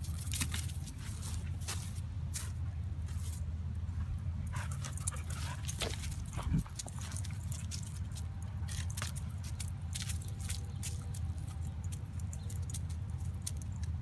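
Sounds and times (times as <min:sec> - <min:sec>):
wind rumble on microphone: 0:05.5 - 0:07.2.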